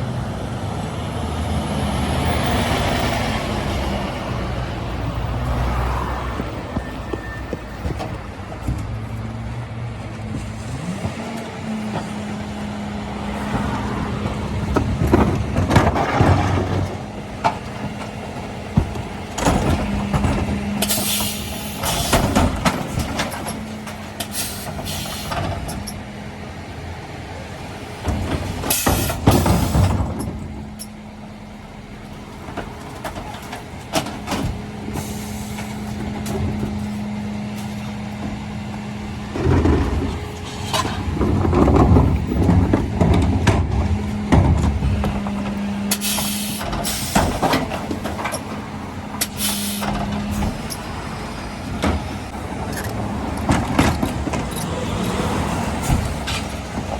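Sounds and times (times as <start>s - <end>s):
truck engine and hydraulic hum: 0.0s - 56.9s
bins banging and clattering: 13.3s - 26.0s, 28.0s - 31.0s, 32.2s - 56.9s.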